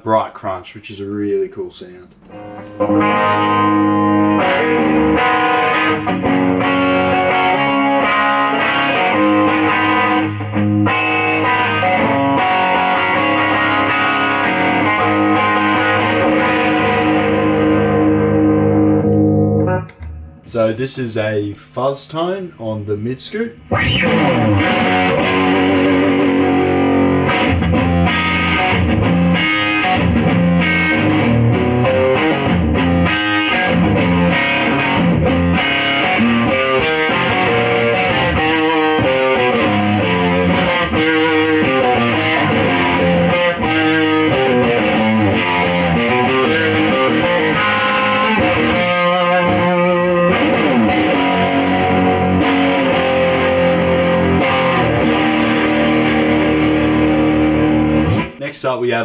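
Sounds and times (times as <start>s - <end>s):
fuzz electric guitar playing: 2.2s - 20.8s, 23.6s - 58.4s.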